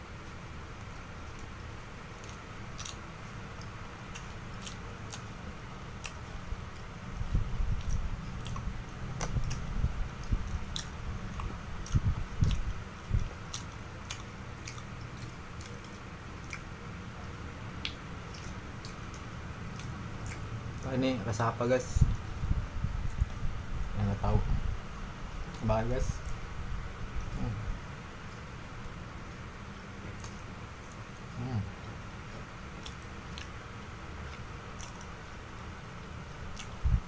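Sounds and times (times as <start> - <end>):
person chewing: 0.2 - 21.1, 30.0 - 37.0.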